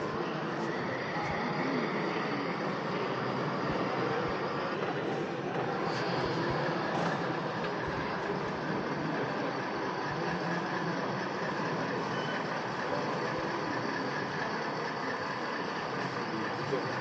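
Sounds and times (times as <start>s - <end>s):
model trains running: 0.0s - 17.0s
visitors chattering: 0.0s - 17.0s.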